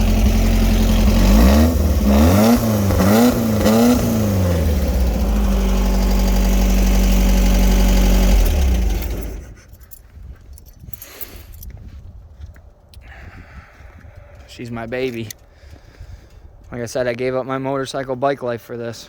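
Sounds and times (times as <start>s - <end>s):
engine idling and revving: 0.0s - 9.8s.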